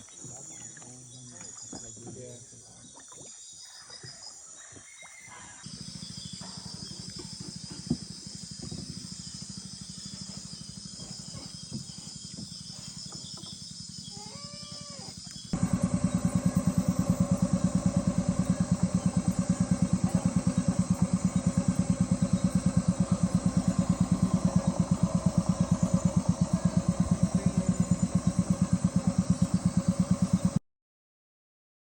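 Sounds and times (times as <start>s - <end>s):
boat motor chugging: 5.6s - 30.6s.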